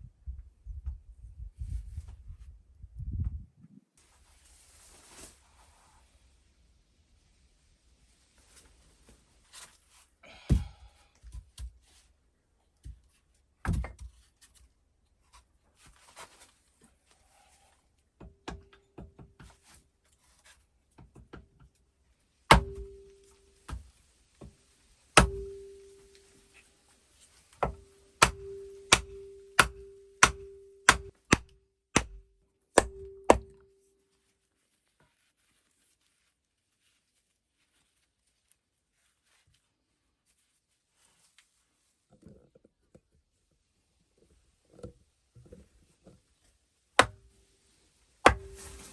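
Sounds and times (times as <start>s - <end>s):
hammer knocking on wood: 27.6s - 32.2s.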